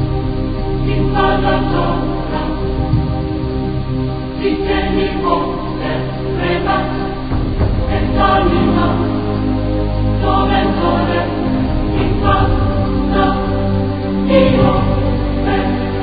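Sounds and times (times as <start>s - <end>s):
choir singing: 0.0s - 16.0s
held low notes: 0.0s - 16.0s.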